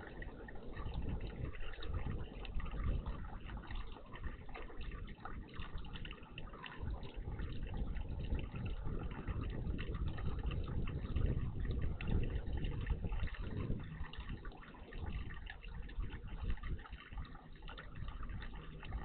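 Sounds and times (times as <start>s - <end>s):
water splashing and trickling: 0.0s - 19.0s.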